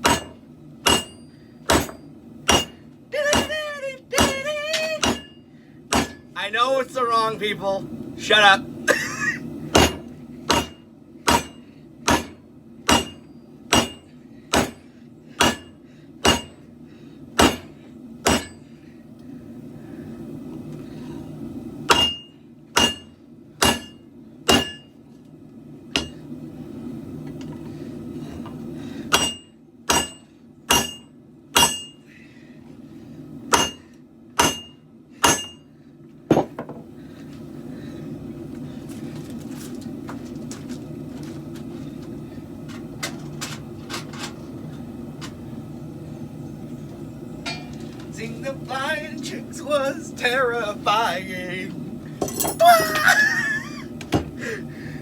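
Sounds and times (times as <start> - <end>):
hammer striking blade on anvil: 0.0 - 3.6, 4.2 - 6.3, 9.8 - 14.8, 15.4 - 16.6, 17.4 - 18.6, 21.9 - 24.9, 29.1 - 32.0, 33.5 - 35.7, 47.5 - 47.7
steady low hum: 0.0 - 55.0.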